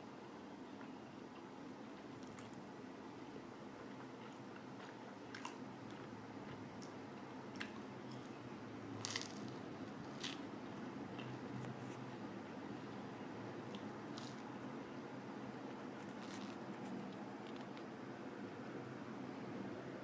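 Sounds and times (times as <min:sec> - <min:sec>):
person chewing pizza: 0:03.8 - 0:08.4, 0:09.0 - 0:10.5, 0:11.1 - 0:12.2, 0:13.7 - 0:14.5, 0:15.7 - 0:17.9
crisp crunches: 0:09.0 - 0:10.4, 0:13.7 - 0:14.5, 0:16.0 - 0:17.9.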